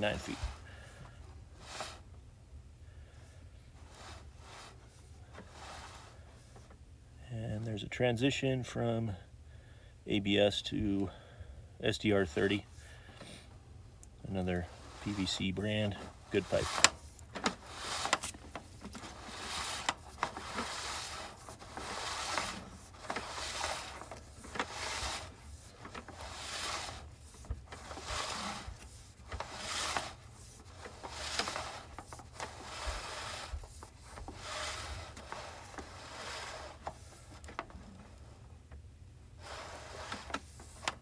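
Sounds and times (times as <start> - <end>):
cable rubbing and scraping in drain: 14.5 - 38.2, 39.4 - 41.0.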